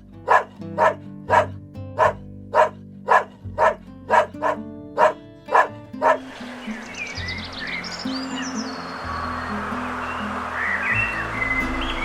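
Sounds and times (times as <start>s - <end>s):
background music with low notes: 0.0s - 12.0s
dog barking: 0.2s - 6.4s.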